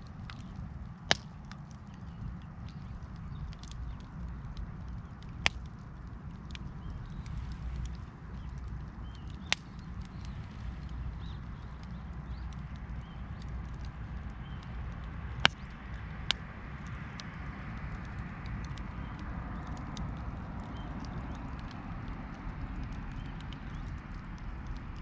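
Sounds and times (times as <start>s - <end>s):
campfire crackling: 0.0s - 25.0s
fire roar: 0.0s - 25.0s
loud fire pops: 6.4s - 24.8s.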